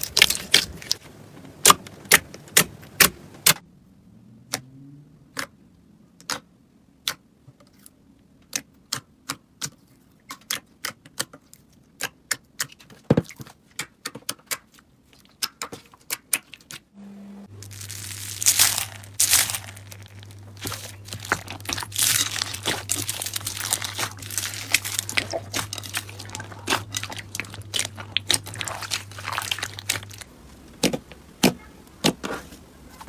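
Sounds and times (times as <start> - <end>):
slime crackling crunch: 0.0 - 1.0, 17.6 - 32.6
steady low hum: 17.0 - 33.0.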